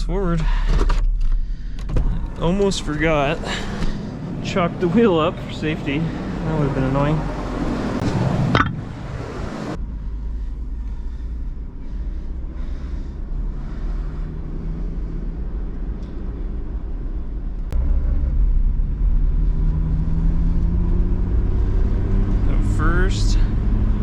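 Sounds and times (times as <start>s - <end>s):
truck engine accelerating: 0.0s - 24.0s.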